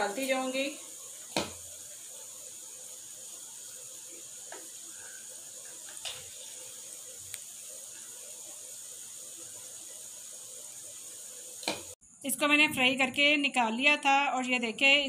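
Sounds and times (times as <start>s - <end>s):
chicken sizzling in a pan: 0.0s - 12.0s.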